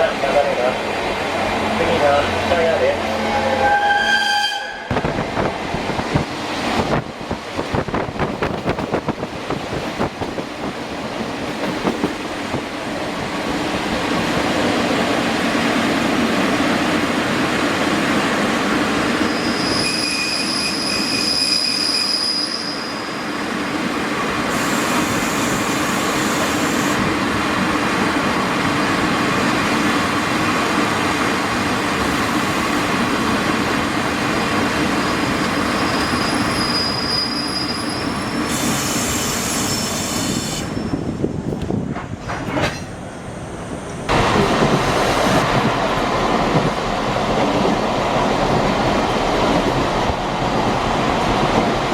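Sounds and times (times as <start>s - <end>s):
train wheels rumbling on track: 0.0s - 51.9s
high wheel squeal: 19.2s - 23.3s, 35.6s - 41.1s
rail-joint clicks: 41.5s - 43.2s.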